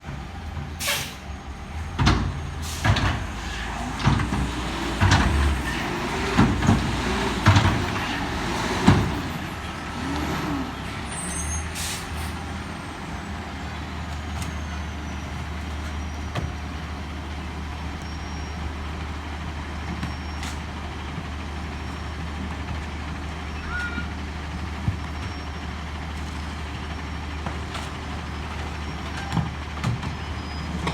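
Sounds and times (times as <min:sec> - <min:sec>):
garbage truck engine drone: 0:00.1 - 0:30.9
loud metal clanks and bangs: 0:02.0 - 0:10.1.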